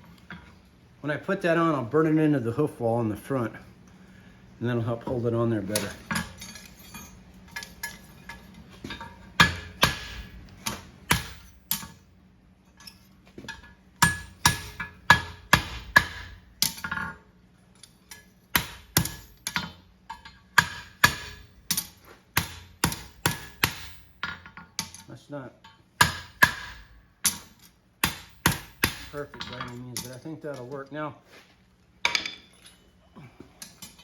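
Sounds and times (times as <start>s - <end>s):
hammer striking steel on anvil: 5.8s - 12.0s, 13.5s - 17.2s, 18.1s - 25.0s, 25.6s - 30.2s.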